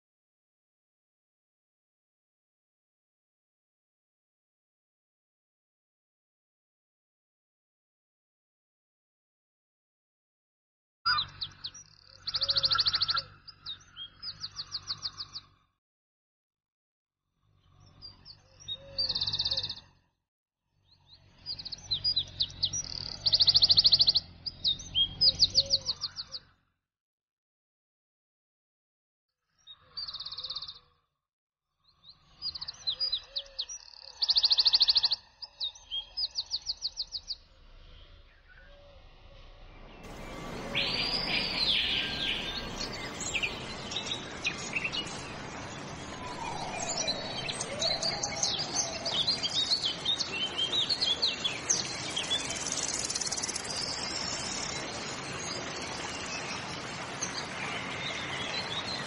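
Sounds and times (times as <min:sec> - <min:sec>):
songbirds chirping and trilling: 0:11.1 - 0:15.8, 0:17.4 - 0:26.7, 0:29.4 - 0:31.1, 0:31.8 - 0:59.0
steady outdoor hiss: 0:32.2 - 0:59.0.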